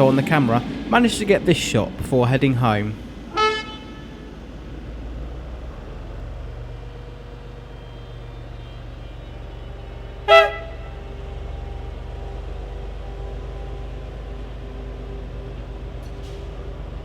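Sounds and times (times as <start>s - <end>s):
steady low rumble: 0.0s - 17.0s
train horn toot: 3.3s - 4.7s, 7.7s - 16.7s.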